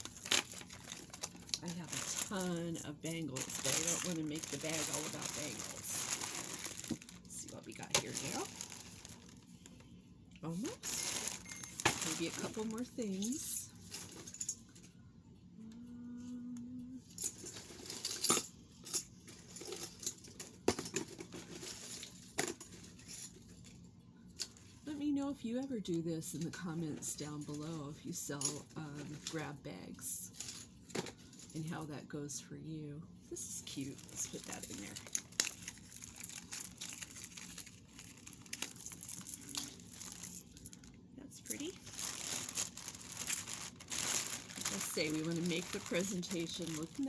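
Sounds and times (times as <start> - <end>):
plastic bag rustling: 0.0 - 9.9, 10.5 - 14.5, 33.4 - 47.0.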